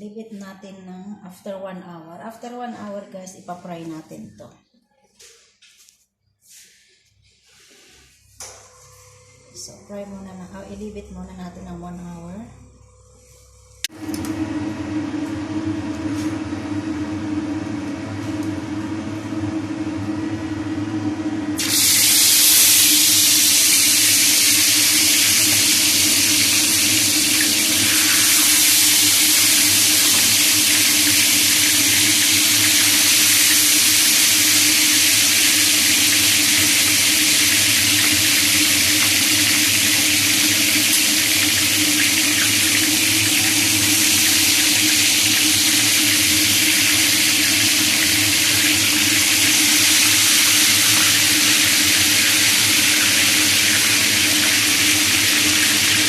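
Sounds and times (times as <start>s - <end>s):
tap water running into sink: 21.6s - 56.0s.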